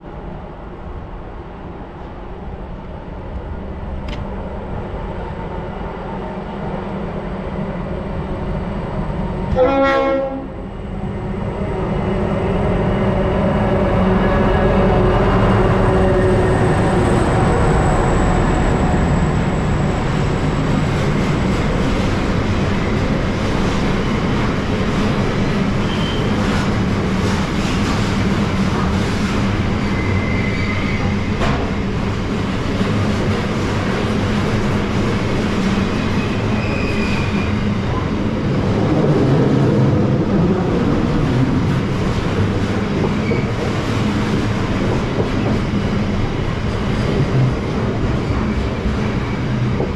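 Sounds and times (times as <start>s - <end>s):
locomotive engines rumbling: 9.1s - 49.9s
high wheel squeals: 25.8s - 26.4s, 29.8s - 31.2s, 35.9s - 37.6s.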